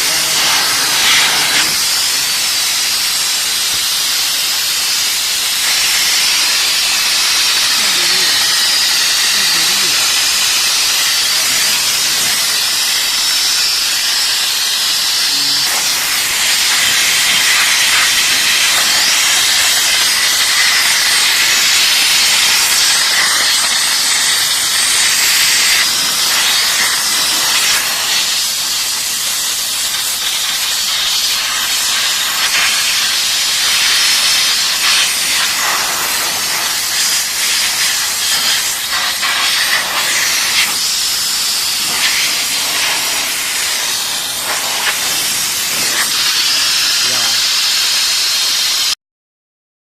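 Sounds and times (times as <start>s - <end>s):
steam jet hissing: 0.0s - 49.0s.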